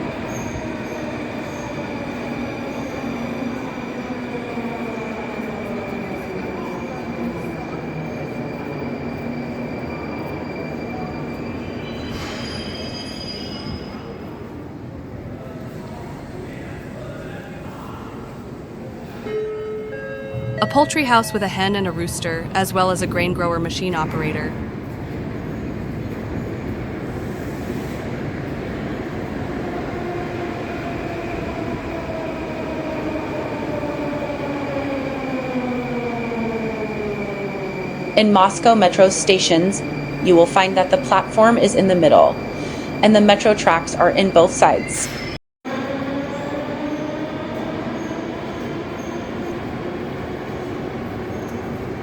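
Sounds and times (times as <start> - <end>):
metro train rumbling: 0.0 - 52.0
train wheels squealing: 6.6 - 14.6, 47.8 - 49.7.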